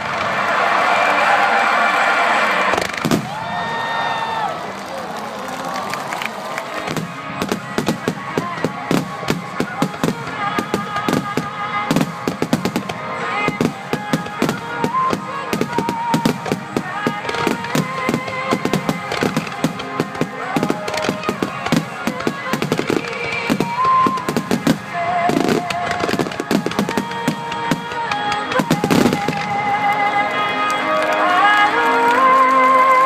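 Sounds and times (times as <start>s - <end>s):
fireworks bangs and crackles: 0.0s - 31.9s
music playing: 0.0s - 33.0s
heavy fireworks booms: 2.6s - 3.8s, 6.8s - 29.7s.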